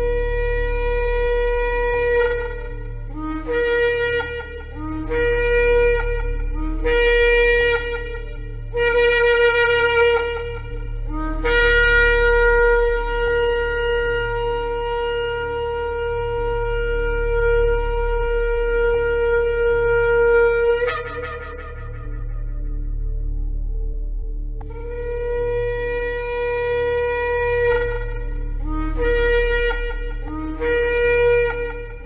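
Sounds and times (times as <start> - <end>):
ram's horn blasts: 0.0 - 23.4, 24.6 - 32.0
low hum: 0.0 - 32.0.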